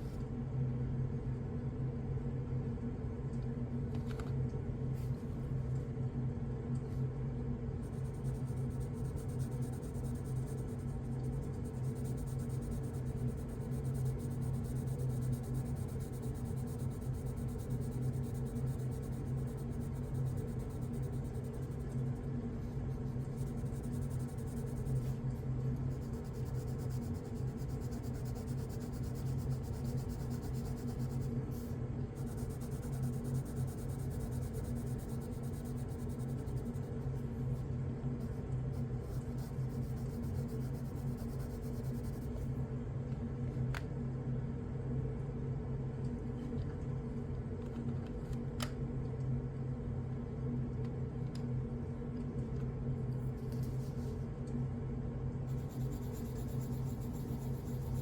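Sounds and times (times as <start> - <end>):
steady low hum: 0.0 - 58.0
pencil scratching on paper: 7.8 - 37.6, 38.2 - 42.5, 55.5 - 58.0.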